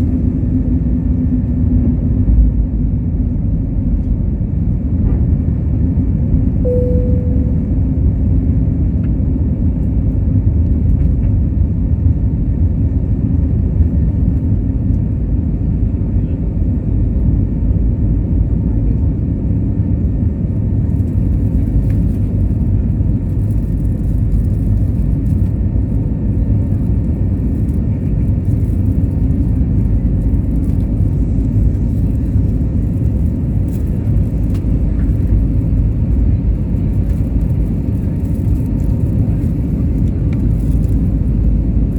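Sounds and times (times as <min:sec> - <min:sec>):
aircraft cabin engine rumble: 0:00.0 - 0:41.9
brief single tone: 0:06.6 - 0:08.2.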